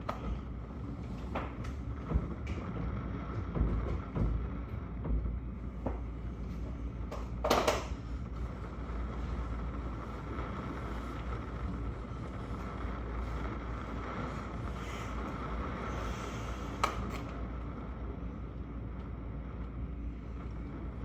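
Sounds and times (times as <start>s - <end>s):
low rumbling background noise: 0.0s - 21.0s.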